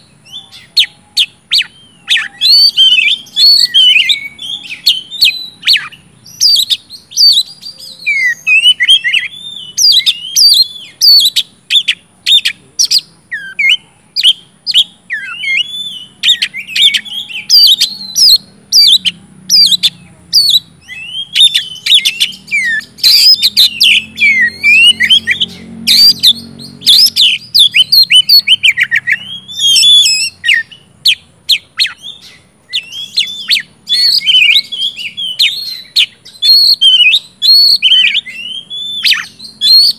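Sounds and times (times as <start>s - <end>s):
magpie-robin singing: 0.0s - 39.9s.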